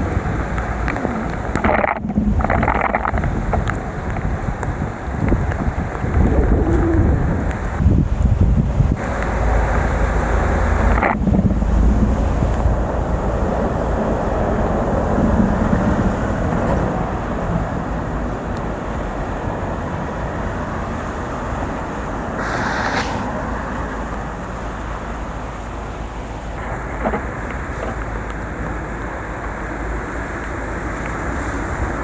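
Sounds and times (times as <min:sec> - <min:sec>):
heavy rain: 0:00.0 - 0:32.0
road traffic on wet pavement: 0:00.0 - 0:32.0
short hiss: 0:22.4 - 0:23.4.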